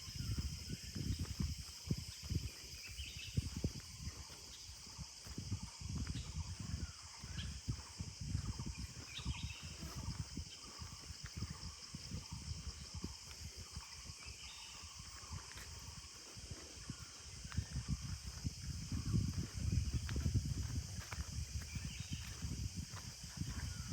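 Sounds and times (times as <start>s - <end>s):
high-pitched insect drone: 0.0s - 23.9s.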